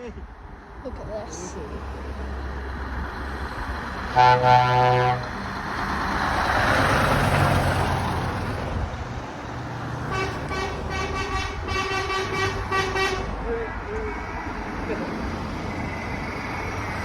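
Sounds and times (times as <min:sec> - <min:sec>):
truck passing: 0:00.0 - 0:17.0
horn short toots: 0:04.1 - 0:05.3, 0:10.1 - 0:13.3
truck horn blast: 0:04.1 - 0:05.4, 0:10.1 - 0:13.4.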